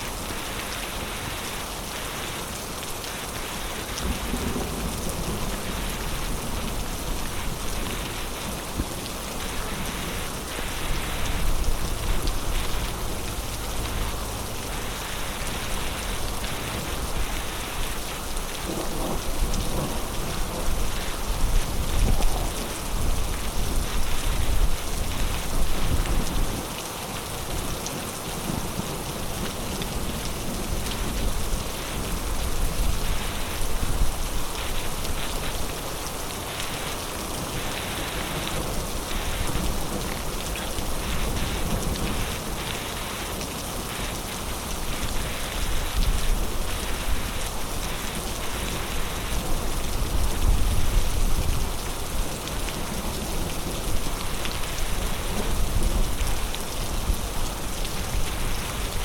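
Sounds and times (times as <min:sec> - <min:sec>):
heavy rain pouring: 0:00.0 - 0:59.0
low thunder rumbling: 0:04.0 - 0:26.6.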